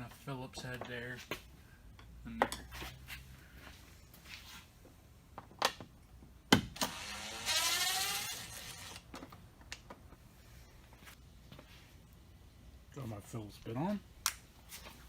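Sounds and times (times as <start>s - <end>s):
cordless drill whirring: 6.8s - 9.1s.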